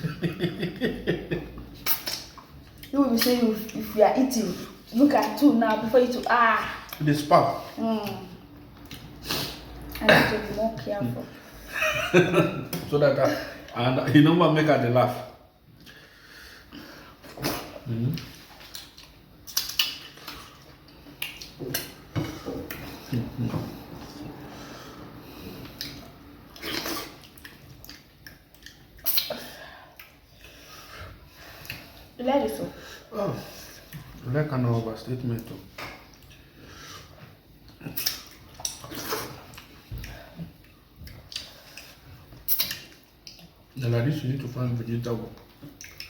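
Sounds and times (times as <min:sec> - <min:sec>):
wet eating clicks and smacks: 0:01.8 - 0:03.8, 0:18.1 - 0:22.1, 0:25.6 - 0:29.4, 0:37.6 - 0:43.6, 0:45.4 - 0:46.0.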